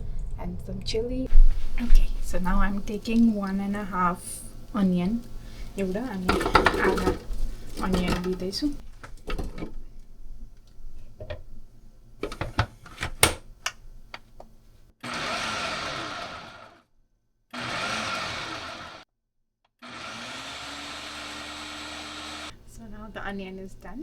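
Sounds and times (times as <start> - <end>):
clicks and knocks of bowl and lid: 6.2 - 9.8, 12.2 - 14.5
food processor motor chopping: 6.3 - 8.4, 15.0 - 16.8, 17.5 - 19.0, 19.8 - 22.6.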